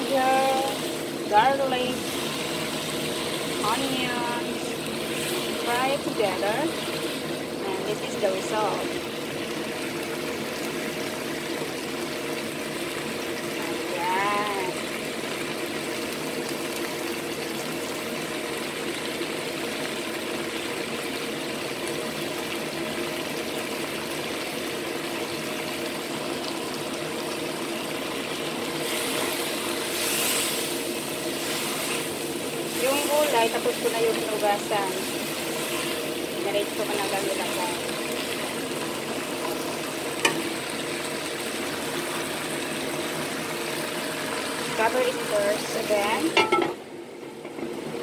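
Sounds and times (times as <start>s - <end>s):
food sizzling in a wok: 0.0s - 48.0s
spatula scraping pan: 28.8s - 36.0s.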